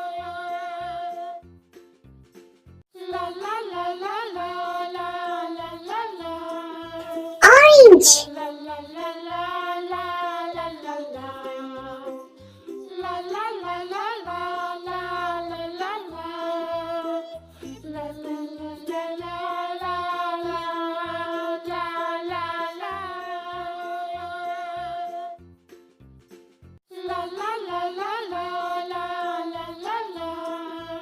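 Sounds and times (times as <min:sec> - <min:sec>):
children's song with sung vocal: 0:07.4 - 0:08.3, 0:17.9 - 0:25.2, 0:26.9 - 0:31.0.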